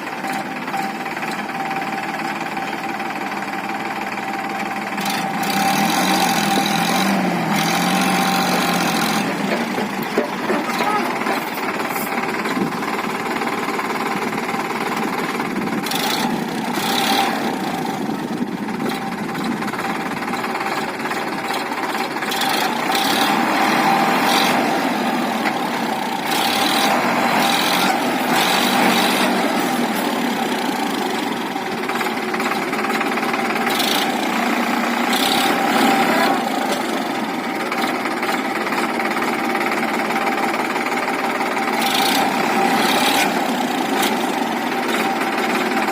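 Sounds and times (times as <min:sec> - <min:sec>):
diesel machinery engines: 0:00.0 - 0:45.9
machinery knocks and clatters: 0:08.5 - 0:12.8.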